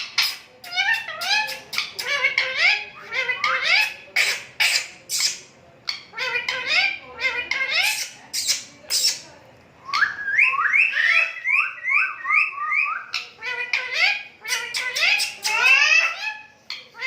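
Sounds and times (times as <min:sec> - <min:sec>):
harsh parrot calls: 0:00.0 - 0:09.3, 0:09.9 - 0:17.0.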